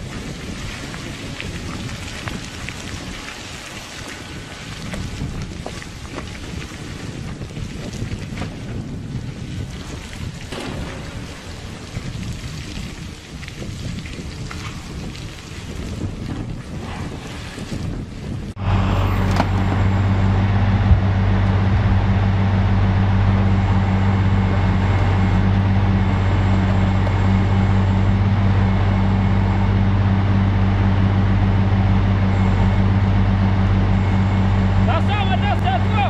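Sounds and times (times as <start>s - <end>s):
wind-like rushing noise: 0.0s - 35.4s
heavy engine droning: 10.5s - 13.2s, 18.5s - 36.0s.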